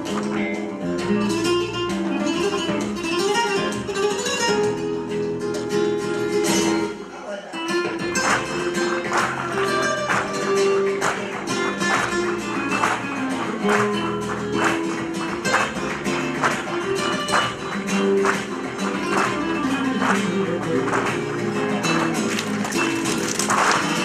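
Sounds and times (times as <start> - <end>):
flamenco guitar: 0.0 - 24.0
percussive beat: 7.7 - 24.0.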